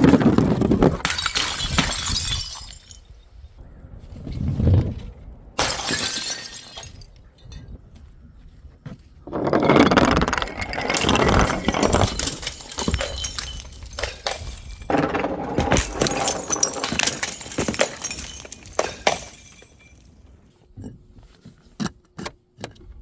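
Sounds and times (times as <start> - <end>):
glass bottles breaking: 1.0 - 3.2, 5.6 - 7.5, 10.2 - 20.2.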